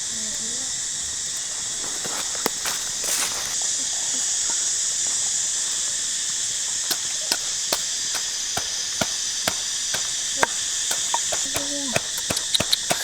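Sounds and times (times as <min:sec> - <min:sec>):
high-pitched insect drone: 0:00.0 - 0:13.0
sharp clicks: 0:06.9 - 0:13.0.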